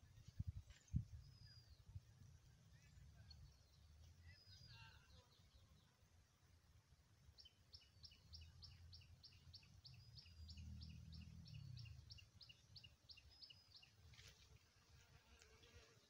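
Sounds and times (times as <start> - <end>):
faint high bird chirps: 0.0 - 2.0, 2.7 - 6.0, 7.4 - 14.4.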